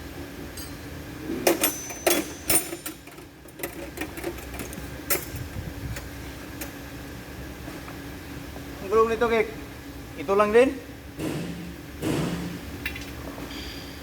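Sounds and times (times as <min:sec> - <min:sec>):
metal tools clinking: 0:01.5 - 0:05.5.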